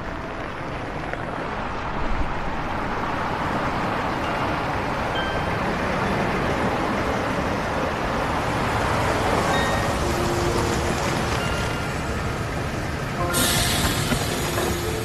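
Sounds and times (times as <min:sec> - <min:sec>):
bus approaching: 0:00.0 - 0:15.0
road traffic noise: 0:00.0 - 0:15.0.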